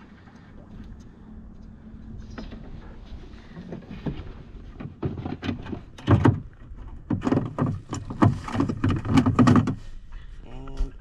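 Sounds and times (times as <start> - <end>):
low steady rumble: 0.0 - 11.0
knocks against a canoe hull: 3.7 - 9.9.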